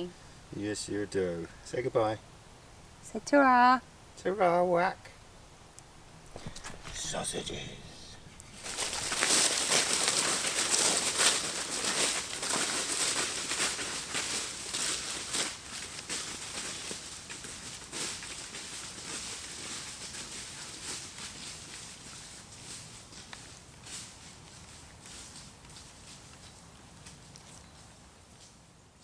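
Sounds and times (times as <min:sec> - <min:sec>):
dry leaves rustling and crunching: 0:06.3 - 0:28.6.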